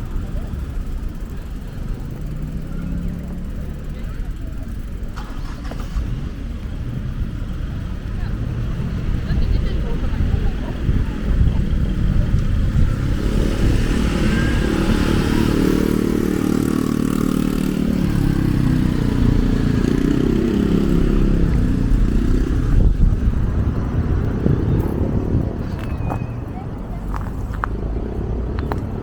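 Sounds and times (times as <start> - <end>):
vehicle engine passing: 0.0 - 29.0
low rumble: 17.4 - 29.0.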